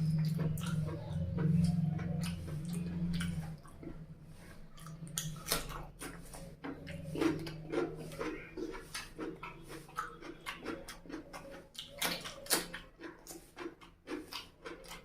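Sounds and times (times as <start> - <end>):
wet chewing and lip-smacking: 0.0 - 15.0.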